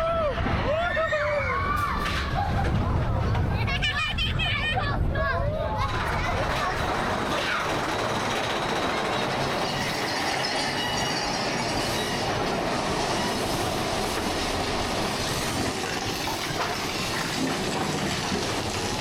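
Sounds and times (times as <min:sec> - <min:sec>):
roller coaster rumbling on track: 0:00.0 - 0:19.0
high wheel squeal: 0:07.2 - 0:17.4.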